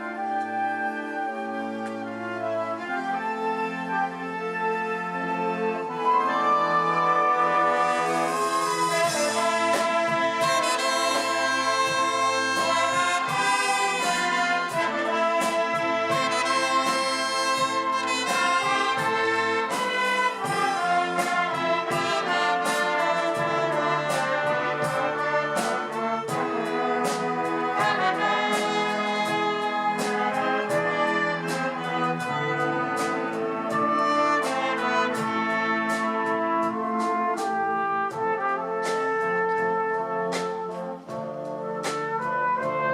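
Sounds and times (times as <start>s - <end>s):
wind band music: 0.0s - 42.9s
percussion strikes: 7.6s - 41.2s.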